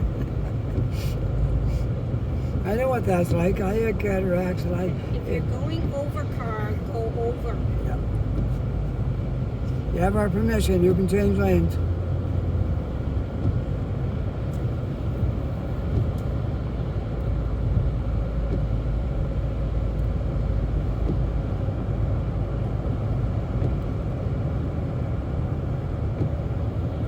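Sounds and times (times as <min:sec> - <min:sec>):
car road and engine rumble: 0:00.0 - 0:27.0.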